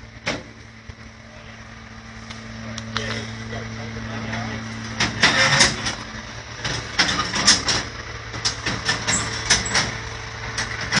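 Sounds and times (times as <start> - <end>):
car engine idling: 0.0 - 11.0
sharp clicks and knocks: 4.9 - 10.0.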